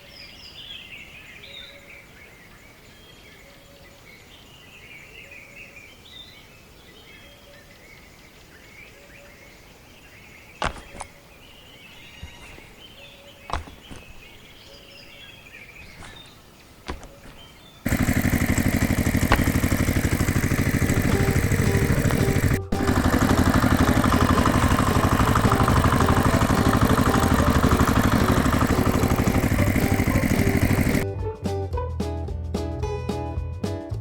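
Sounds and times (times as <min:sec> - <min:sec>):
birds chirping and singing: 0:00.0 - 0:31.0
sharp clicks or knocks: 0:10.6 - 0:11.2, 0:13.5 - 0:14.3.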